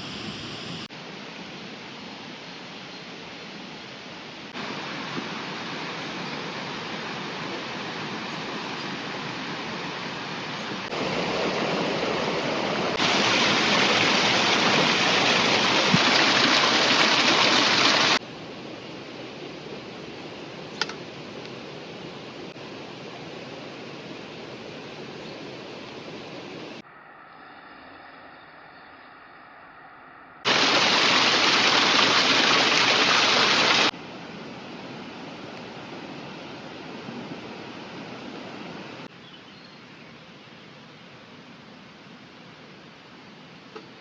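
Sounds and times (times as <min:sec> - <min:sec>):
river water rushing: 0:04.6 - 0:18.2, 0:30.5 - 0:33.9.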